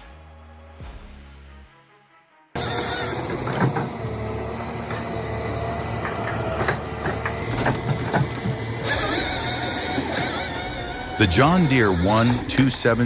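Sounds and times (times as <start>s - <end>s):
heavy machine engine running: 2.6s - 13.0s.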